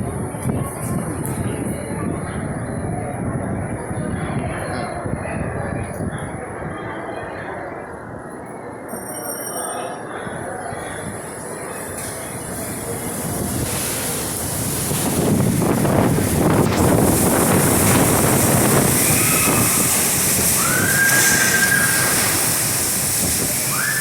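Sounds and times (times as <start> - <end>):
high whistling wind tones: 10.3 - 24.0
wind gusting roar: 12.3 - 24.0.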